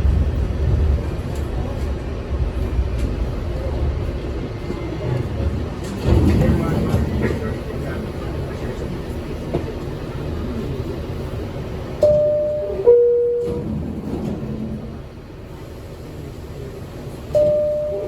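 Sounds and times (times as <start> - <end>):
train rumbling: 0.0 - 18.0
two-tone descending door chime: 17.4 - 18.0.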